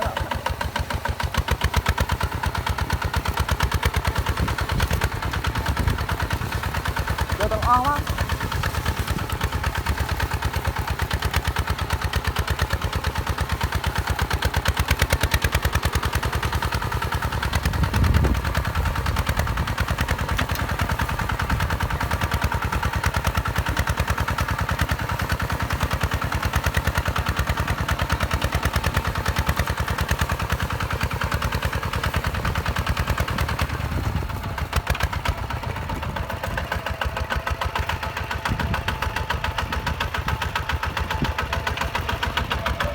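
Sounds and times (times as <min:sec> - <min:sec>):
diesel engine chugging: 0:00.0 - 0:42.9.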